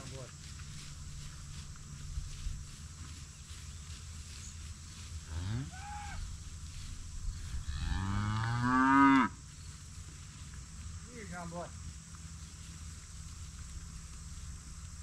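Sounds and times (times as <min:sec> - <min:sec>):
cow mooing: 0:07.6 - 0:09.3.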